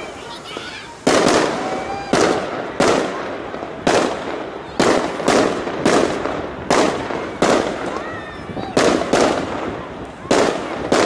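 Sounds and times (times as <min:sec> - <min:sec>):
firework shells bursting: 0:00.0 - 0:08.0.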